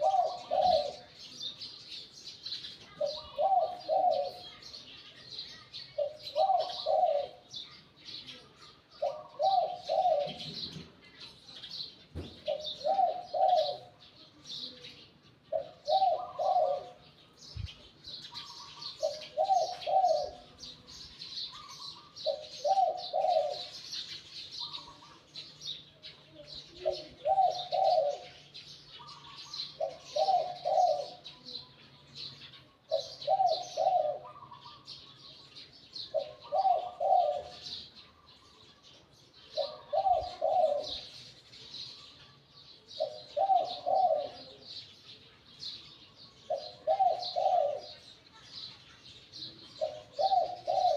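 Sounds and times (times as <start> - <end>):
dove cooing: 0.0 - 1.2, 2.9 - 4.6, 6.0 - 7.6, 9.0 - 11.0, 12.2 - 14.1, 15.4 - 17.3, 18.2 - 25.3, 26.4 - 31.5, 32.4 - 38.4, 39.4 - 41.3, 42.9 - 44.8, 46.4 - 48.1, 49.6 - 50.9
small birds twittering: 0.0 - 50.9.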